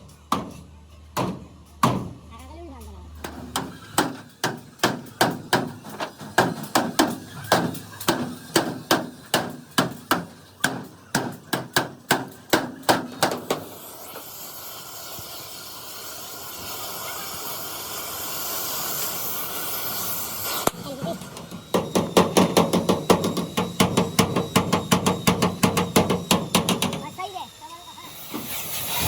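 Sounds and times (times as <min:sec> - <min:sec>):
hammer beating sheet metal: 0:03.2 - 0:13.7, 0:21.7 - 0:27.1
steady hiss: 0:04.0 - 0:29.0.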